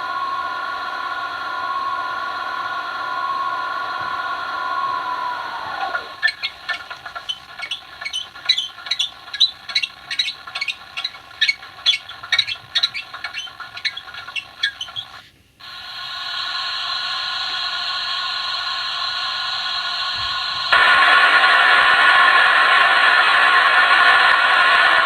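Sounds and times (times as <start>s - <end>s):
steady hiss: 0.0s - 25.0s.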